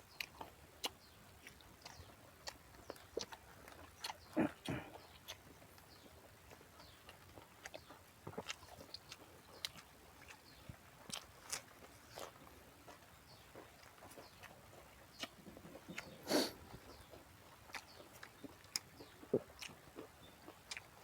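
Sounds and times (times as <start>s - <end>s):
person crunching raw vegetables: 7.3s - 20.9s.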